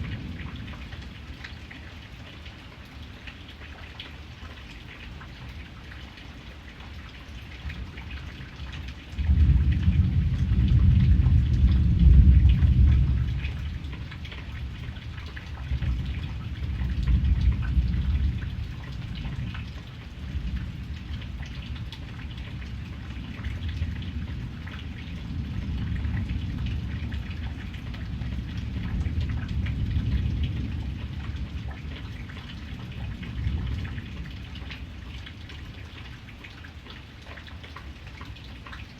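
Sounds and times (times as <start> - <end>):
rain pattering: 0.0 - 38.9
thunder rumbling: 9.2 - 34.4.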